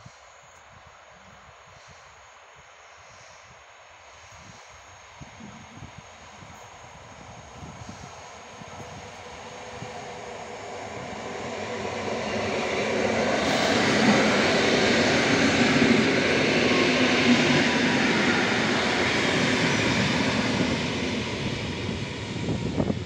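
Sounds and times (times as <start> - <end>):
train wheels on rails: 6.2 - 23.0.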